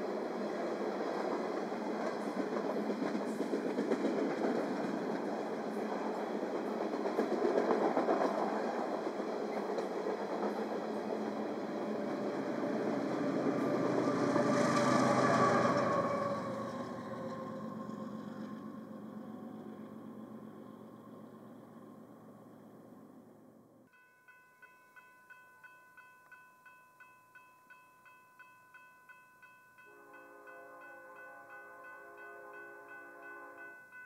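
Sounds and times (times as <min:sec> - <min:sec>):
freight train cars rolling on rails: 0:00.0 - 0:23.6
wheels clicking over rail joints: 0:00.1 - 0:21.1.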